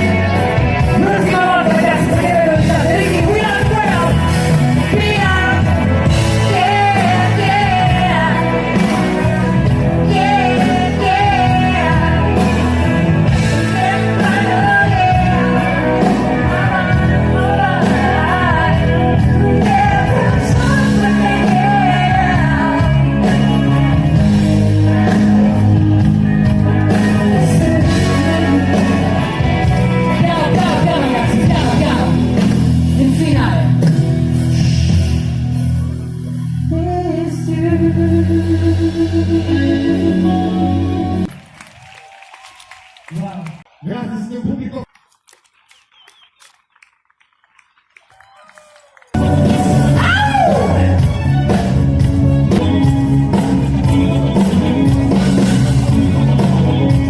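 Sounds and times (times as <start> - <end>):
lead singer: 0.0 - 41.3, 49.2 - 57.0
live pop-rock band: 0.0 - 43.0, 49.1 - 57.0
steady drum beat: 49.2 - 57.0.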